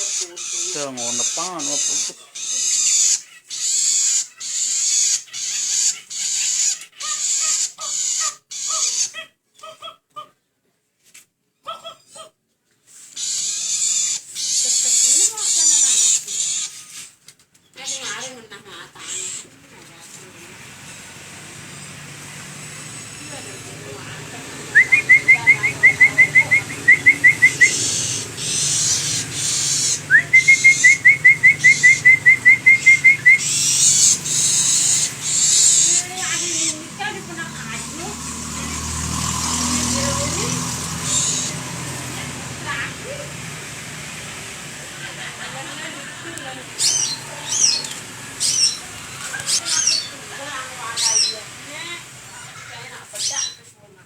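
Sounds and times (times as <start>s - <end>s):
shrike harsh rasping calls: 0.0s - 9.2s, 13.1s - 17.1s, 17.8s - 53.6s
bird singing whistled notes: 24.6s - 36.9s, 46.8s - 50.2s.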